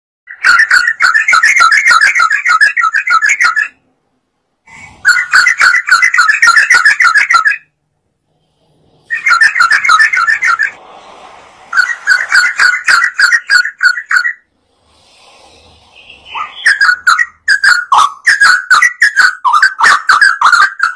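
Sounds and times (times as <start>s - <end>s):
bulbul chattering song: 0.3s - 3.9s, 4.8s - 7.8s, 9.1s - 10.8s, 11.7s - 14.5s, 15.8s - 20.9s.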